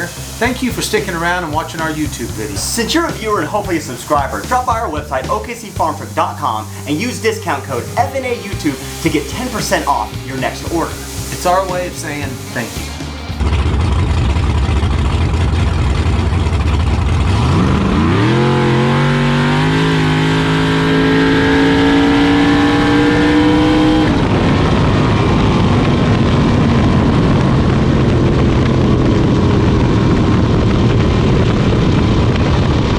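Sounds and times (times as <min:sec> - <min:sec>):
steady noise: 0:00.0 - 0:32.9
vehicle engine accelerating: 0:00.0 - 0:32.9.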